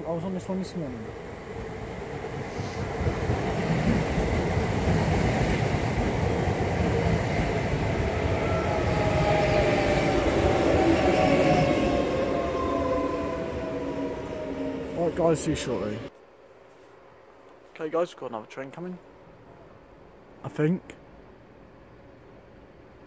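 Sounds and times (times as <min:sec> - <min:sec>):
train wheels rumbling: 0:00.0 - 0:16.1
train whine falling in pitch: 0:07.7 - 0:16.1.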